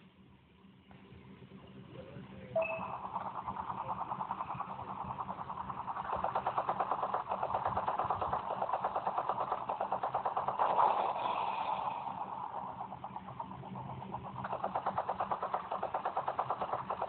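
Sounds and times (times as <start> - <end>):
helicopter rotor chopping: 2.6 - 17.0.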